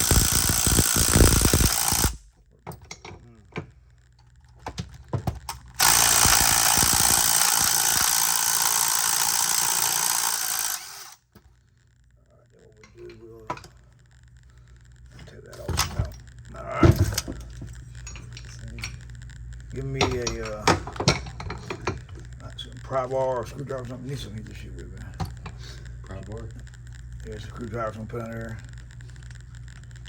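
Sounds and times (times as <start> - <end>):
power tool running: 0.0 - 2.2, 5.8 - 11.3.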